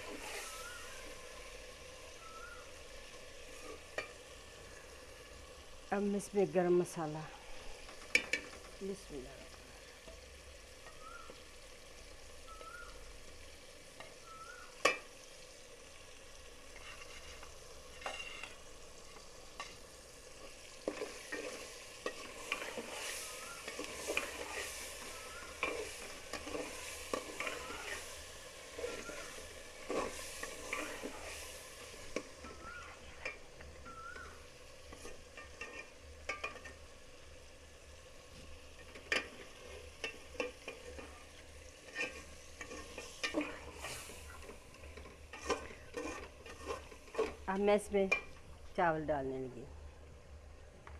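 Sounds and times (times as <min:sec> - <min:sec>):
food sizzling in oil: 0:00.0 - 0:50.5
spoon scraping and clinking pot: 0:16.8 - 0:18.6, 0:20.8 - 0:28.2, 0:28.8 - 0:31.3, 0:34.9 - 0:36.8, 0:41.8 - 0:47.4.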